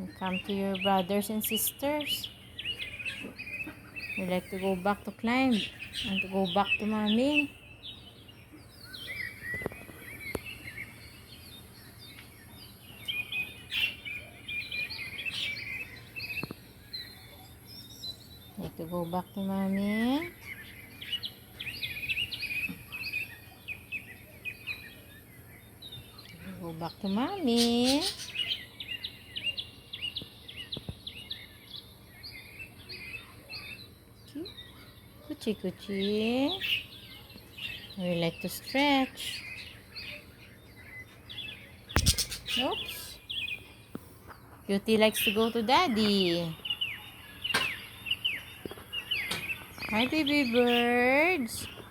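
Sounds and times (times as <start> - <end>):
small birds chirping: 0.0 - 51.9
sharp clicks: 42.0 - 42.7.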